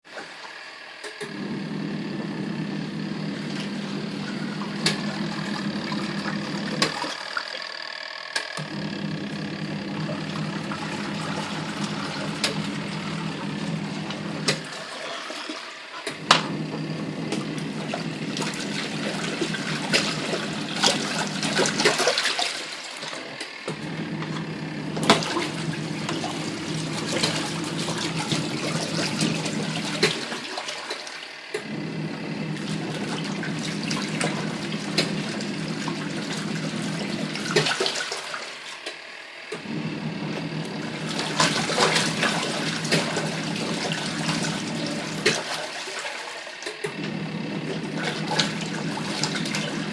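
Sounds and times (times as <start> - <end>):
washing machine motor humming: 0.0 - 49.9
water sloshing and splashing: 3.4 - 7.8, 9.4 - 31.7, 32.5 - 39.0, 40.5 - 49.9.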